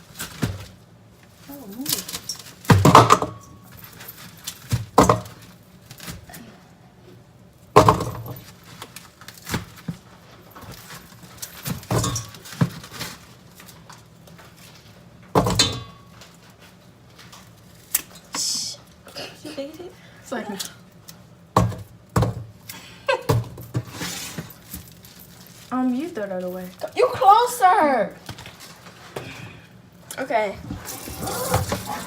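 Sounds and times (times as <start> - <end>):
kitchenware clattering: 11.7 - 12.9, 15.4 - 16.1, 30.7 - 32.0.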